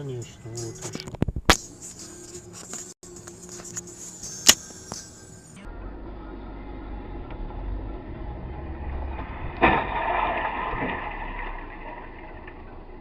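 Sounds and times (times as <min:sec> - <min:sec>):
car road and engine rumble: 0:03.1 - 0:13.0
vehicle collision bang: 0:08.4 - 0:12.9.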